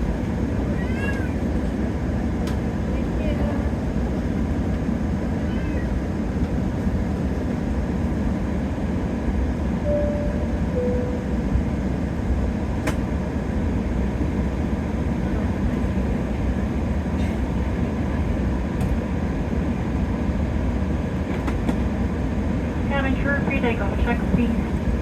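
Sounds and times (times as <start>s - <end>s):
aircraft cabin rumble: 0.0s - 25.0s
two-note cabin chime: 9.9s - 11.7s.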